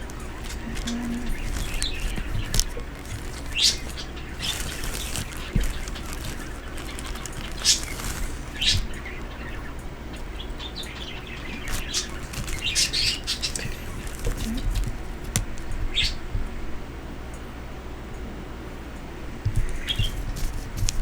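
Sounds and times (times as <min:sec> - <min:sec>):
pet birds chirping: 0:00.0 - 0:16.2.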